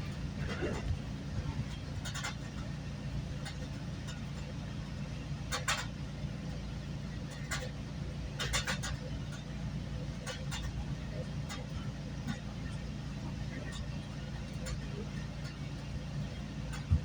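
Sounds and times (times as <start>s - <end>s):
train rumbling from inside: 0.0s - 17.0s
sharp clicks and clacks: 1.6s - 2.7s, 5.5s - 6.0s, 8.4s - 9.5s.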